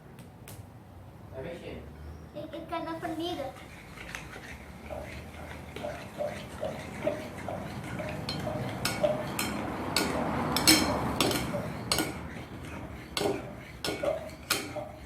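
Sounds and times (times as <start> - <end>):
spoon stirring slime: 3.2 - 15.0
spoon clinking against bowl: 4.9 - 15.0.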